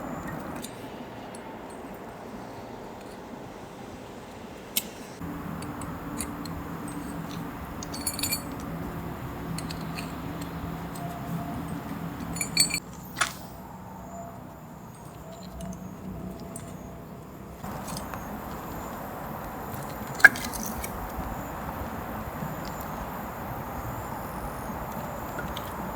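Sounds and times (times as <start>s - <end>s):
small metal objects clinking: 5.2s - 12.8s
low steady hum: 5.2s - 12.9s.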